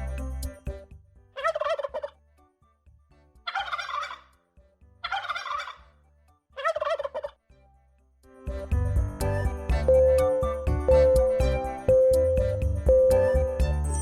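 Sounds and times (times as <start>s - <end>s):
turkey gobbling: 1.4s - 2.1s, 3.5s - 4.3s, 5.0s - 5.8s, 6.6s - 7.4s.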